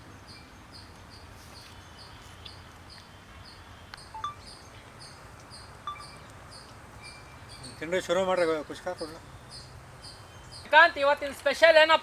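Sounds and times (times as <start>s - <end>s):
high repeating insect chirp: 4.0s - 10.7s.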